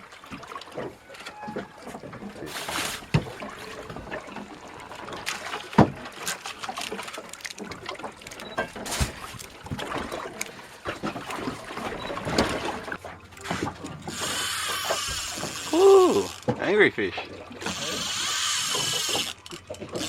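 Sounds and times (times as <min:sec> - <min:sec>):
water lapping against boat hull: 0:00.0 - 0:20.0
knocks and clatter on board: 0:00.3 - 0:15.7, 0:16.3 - 0:16.8.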